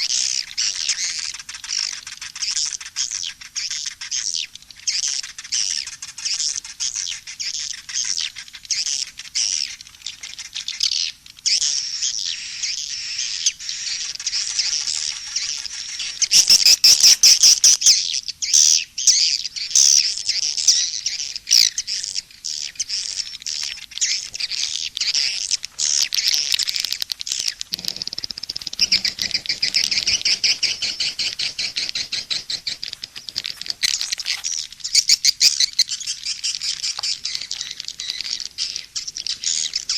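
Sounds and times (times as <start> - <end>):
swiftlets chirping: 25.2 - 36.0.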